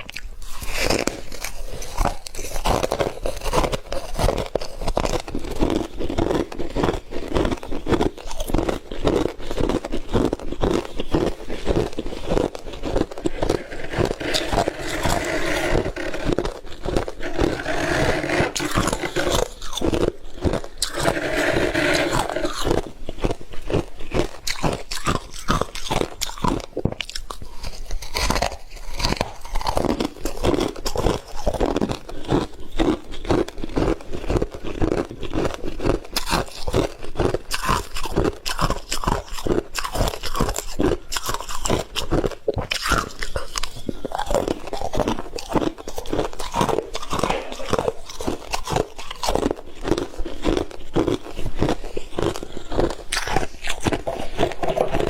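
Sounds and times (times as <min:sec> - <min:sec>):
frost being chewed: 0:00.0 - 0:55.0.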